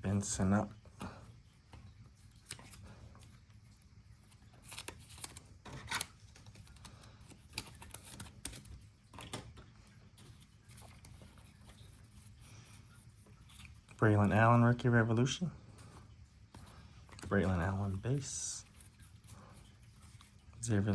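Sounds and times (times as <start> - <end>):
low steady hum: 0.0 - 20.9
cards clicking and rustling: 1.0 - 3.6, 4.2 - 14.5.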